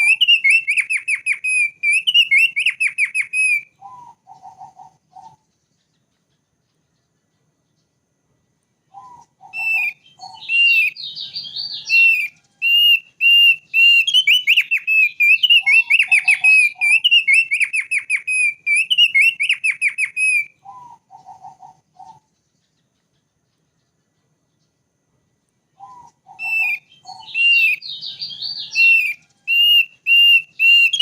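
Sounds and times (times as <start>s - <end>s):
bird whistling song: 0.0s - 7.9s, 8.8s - 24.8s, 25.7s - 31.0s
bird chattering notes: 9.1s - 24.7s, 25.9s - 31.0s.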